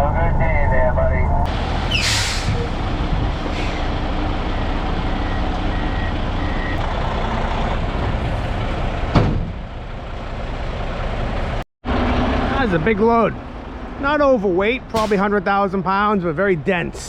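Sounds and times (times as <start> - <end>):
diesel truck engine running: 1.3 - 17.0
backup alarm beeps: 4.6 - 6.8.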